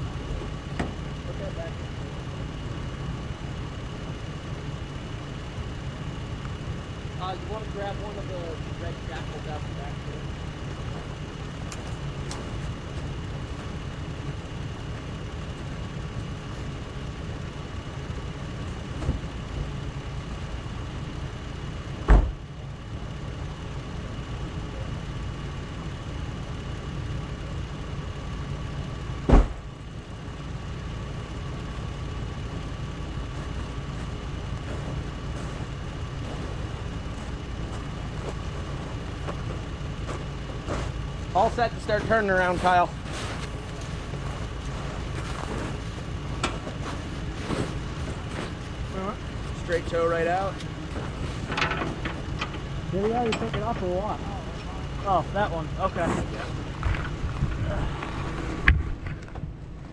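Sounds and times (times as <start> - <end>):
vehicle engine idling: 0.0 - 59.9
loud sharp clunks: 22.0 - 22.4, 29.2 - 29.6.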